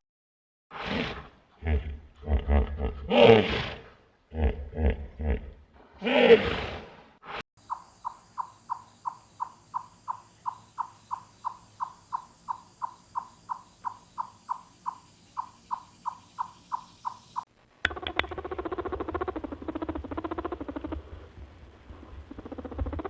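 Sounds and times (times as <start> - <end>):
animal chirping: 7.7 - 21.0, 22.3 - 23.0.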